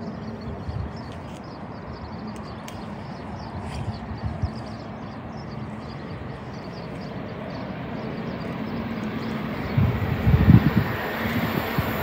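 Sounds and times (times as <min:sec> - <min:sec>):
small birds chirping: 0:00.0 - 0:11.9
train rumble approaching: 0:03.2 - 0:12.0.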